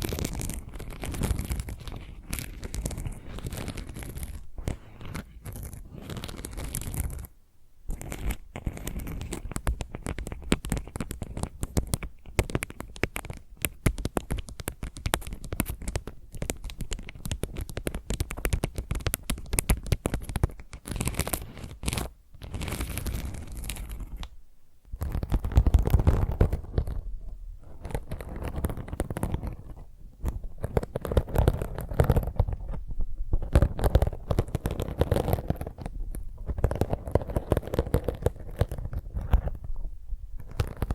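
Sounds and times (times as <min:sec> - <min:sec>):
fingernails scratching ceramic tile: 0:00.0 - 0:07.3, 0:07.9 - 0:24.3, 0:27.7 - 0:32.8, 0:33.4 - 0:39.6, 0:40.4 - 0:40.9
scratching on scouring pad: 0:00.0 - 0:07.3, 0:07.9 - 0:11.8.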